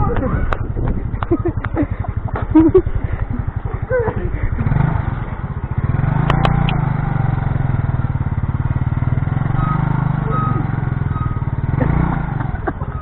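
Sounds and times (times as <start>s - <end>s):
small motorcycle engine running: 0.0s - 13.0s
sharp clicks: 6.2s - 6.8s.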